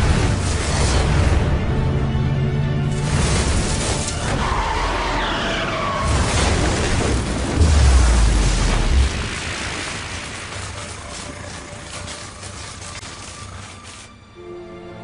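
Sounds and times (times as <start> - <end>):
deep rumble: 6.1 - 12.7.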